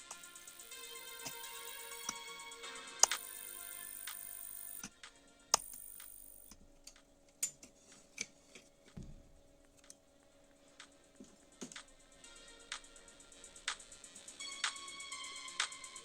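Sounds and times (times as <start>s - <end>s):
faint steady hum: 0.0s - 16.0s
soft low thump: 9.0s - 9.4s.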